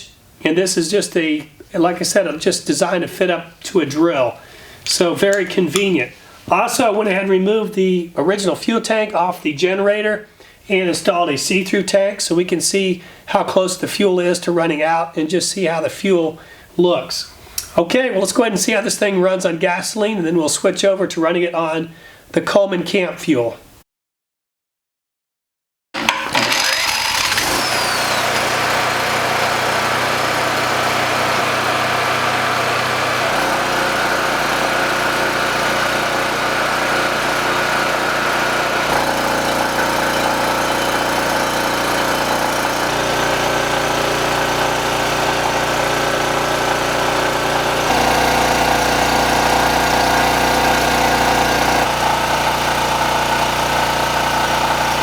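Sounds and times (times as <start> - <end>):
portable generator engine running: 26.0 - 55.0.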